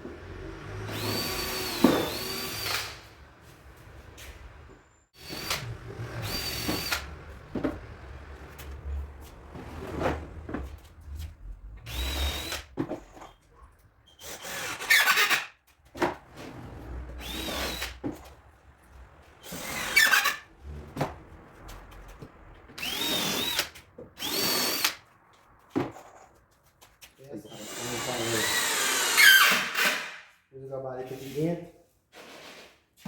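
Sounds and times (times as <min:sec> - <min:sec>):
power drill boring into wood: 0:00.6 - 0:03.0, 0:05.2 - 0:07.1, 0:11.9 - 0:12.7, 0:14.2 - 0:15.5, 0:17.2 - 0:18.0, 0:19.4 - 0:20.4, 0:22.8 - 0:25.0, 0:27.5 - 0:30.3.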